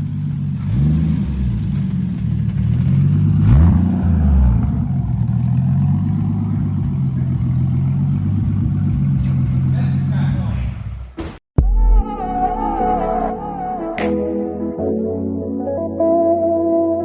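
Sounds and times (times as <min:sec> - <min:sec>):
car engine revving and idling: 0:00.0 - 0:11.2.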